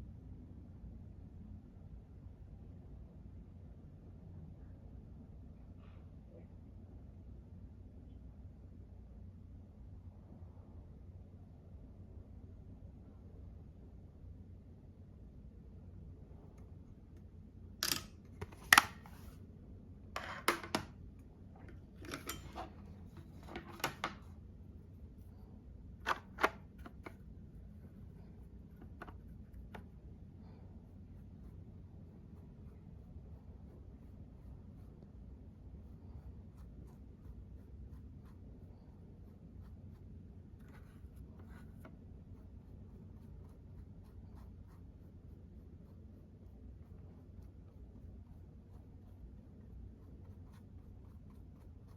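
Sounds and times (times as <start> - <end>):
makeup cases clicking and tapping: 17.8 - 19.0, 20.2 - 20.9, 23.4 - 24.2
makeup brush scratching strokes: 21.6 - 51.9.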